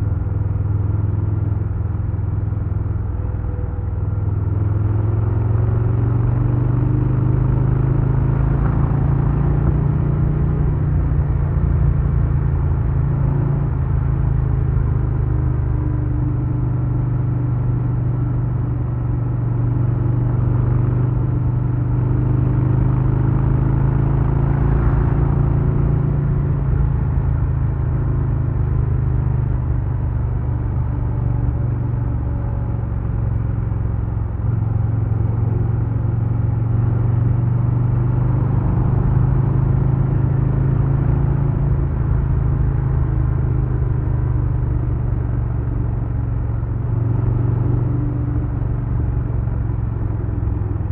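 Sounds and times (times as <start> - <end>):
motorcycle engine rumbling: 22.3 - 28.8.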